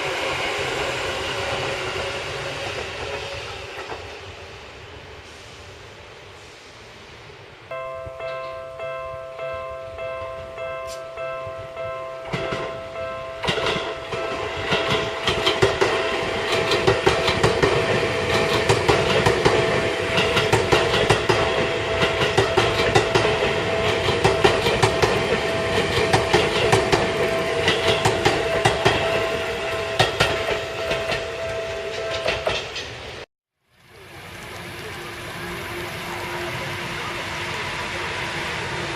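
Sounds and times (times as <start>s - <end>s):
electric train running: 0.0s - 4.8s, 12.3s - 33.2s, 33.8s - 38.9s
train wheels clacking over rail joints: 13.4s - 33.2s.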